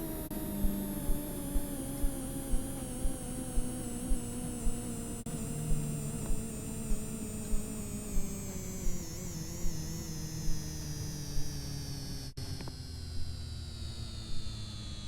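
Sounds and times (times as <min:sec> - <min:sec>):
washing machine motor whine: 0:00.0 - 0:15.0.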